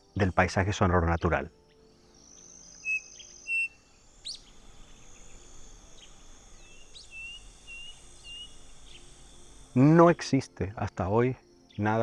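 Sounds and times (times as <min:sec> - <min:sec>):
high insect drone: 0:00.0 - 0:12.0
bird whistling calls: 0:02.3 - 0:10.0.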